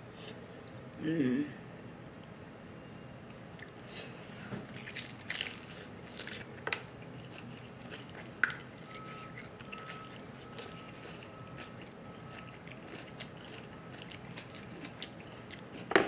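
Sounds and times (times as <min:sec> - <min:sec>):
taco crunching and chewing: 0:03.6 - 0:16.0.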